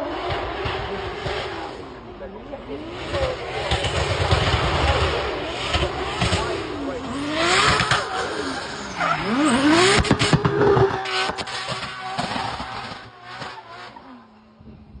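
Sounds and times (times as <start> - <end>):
car engine revving: 0.0 - 14.6
exhaust cracks: 2.8 - 14.3.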